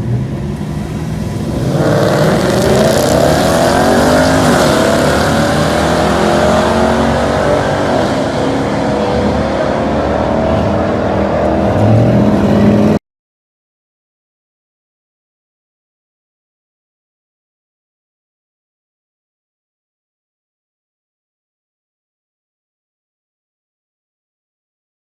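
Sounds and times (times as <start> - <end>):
engine at full throttle: 0.0 - 13.0.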